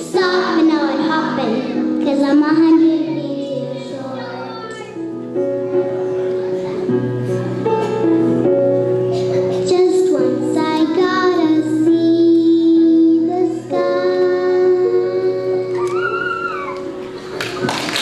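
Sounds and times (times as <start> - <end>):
children singing: 0.0 - 5.0
musical accompaniment: 0.0 - 18.0.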